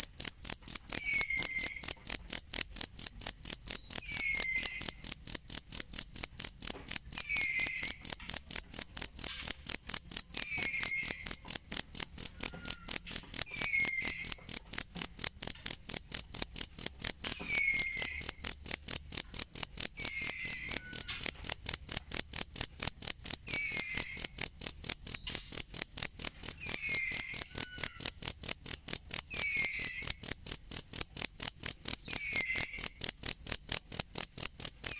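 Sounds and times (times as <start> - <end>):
cricket chirping: 0.0 - 34.9
fainter lower chirp: 0.9 - 2.1, 3.7 - 5.1, 7.0 - 9.6, 10.3 - 15.1, 17.2 - 18.5.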